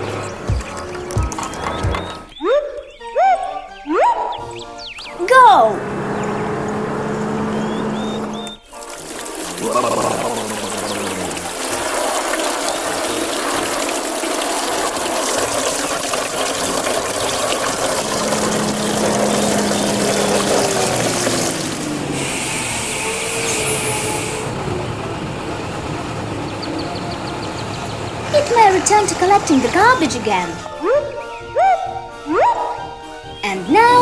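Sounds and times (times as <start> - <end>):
water spraying and splashing: 6.7 - 30.8.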